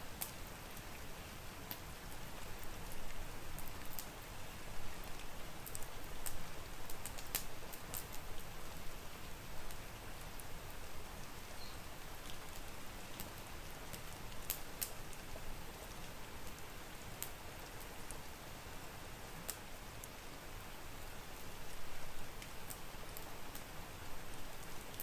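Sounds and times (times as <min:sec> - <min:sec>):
rain hiss: 0:00.0 - 0:25.0
wood fire crackling and popping: 0:01.7 - 0:04.2, 0:05.1 - 0:08.5, 0:12.2 - 0:18.2, 0:22.4 - 0:23.7.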